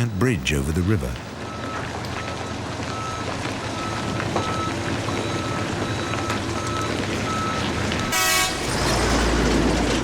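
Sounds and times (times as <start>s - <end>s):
reversing alarm beeping: 1.5s - 8.6s
heavy machinery engine: 2.6s - 10.0s.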